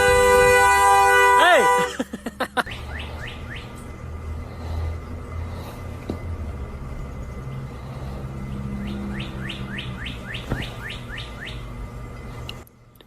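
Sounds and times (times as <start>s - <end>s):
low steady hum: 0.0s - 13.0s
bird chirping: 8.4s - 11.8s.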